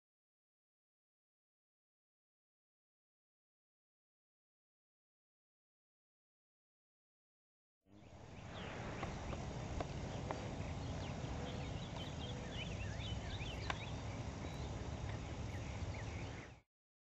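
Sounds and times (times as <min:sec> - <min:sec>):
small birds chirping: 0:07.9 - 0:16.6
steady low rumble: 0:07.9 - 0:16.6
faint clicks: 0:13.6 - 0:13.9.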